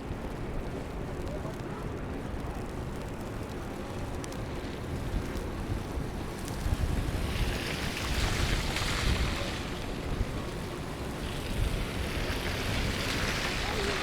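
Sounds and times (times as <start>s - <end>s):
wind rumble on microphone: 0.0s - 14.0s
tyres hissing on wet street: 3.4s - 14.0s.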